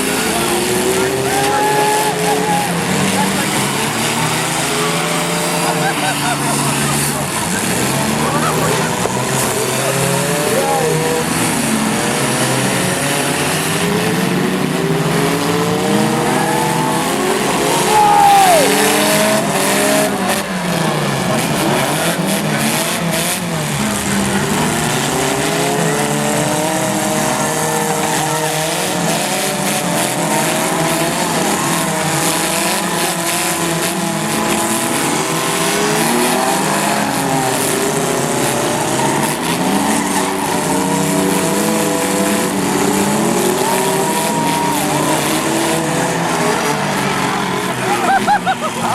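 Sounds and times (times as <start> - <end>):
tire squeal: 0.0 - 48.9
truck engines revving: 0.0 - 48.9.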